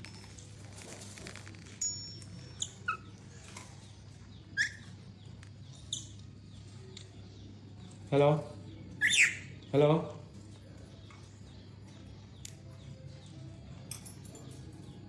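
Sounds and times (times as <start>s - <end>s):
parrot chirping and whistling: 4.6s - 4.8s, 9.0s - 9.5s.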